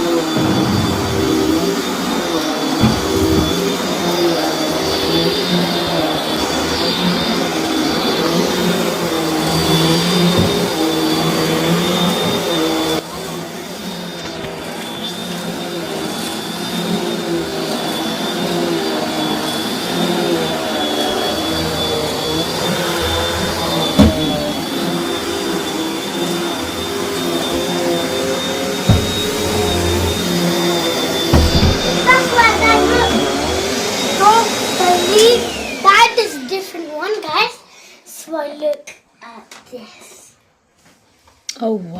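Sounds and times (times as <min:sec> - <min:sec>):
vacuum cleaner whining: 0:00.0 - 0:38.0
vacuum cleaner bumping knocks: 0:00.2 - 0:01.8, 0:02.8 - 0:03.8, 0:10.2 - 0:10.9, 0:23.8 - 0:24.6, 0:28.8 - 0:32.9.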